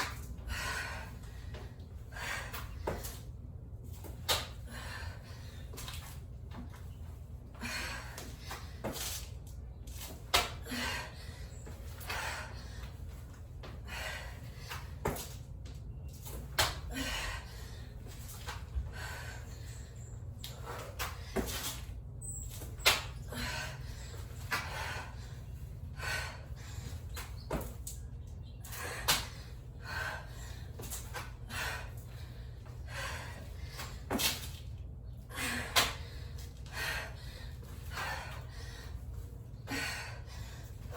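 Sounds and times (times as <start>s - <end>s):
person breathing hard: 0.0s - 3.0s, 4.5s - 5.8s, 7.5s - 8.9s, 10.4s - 15.0s, 16.8s - 21.2s, 23.2s - 27.1s, 28.7s - 34.0s, 35.2s - 40.9s.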